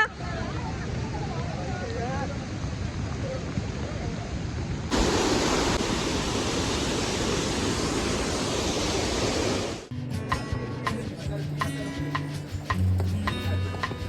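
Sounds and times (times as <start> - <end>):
falling water rushing: 4.9 - 9.9.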